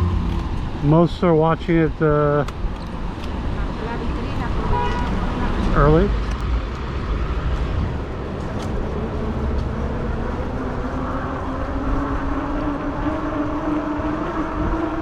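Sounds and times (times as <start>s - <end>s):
wind rumble on microphone: 0.0s - 15.0s
e-bike motor hum: 7.9s - 15.0s.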